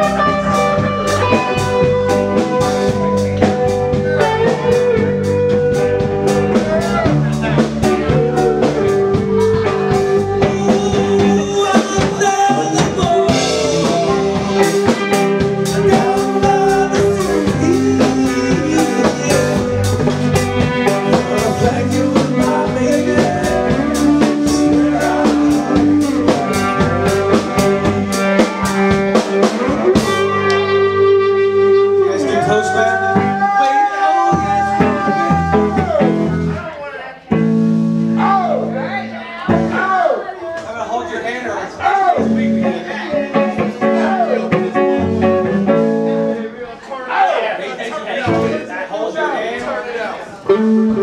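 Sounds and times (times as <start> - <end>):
person singing: 0.0 - 36.5
drum kit beating: 0.0 - 36.6
guitar playing: 0.0 - 39.9, 41.9 - 46.8, 48.2 - 48.7, 50.3 - 51.0.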